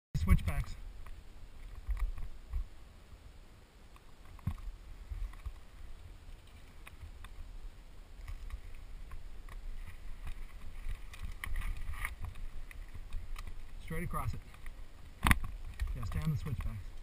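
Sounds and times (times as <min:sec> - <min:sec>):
bike clicking and rattling: 0:08.2 - 0:17.0.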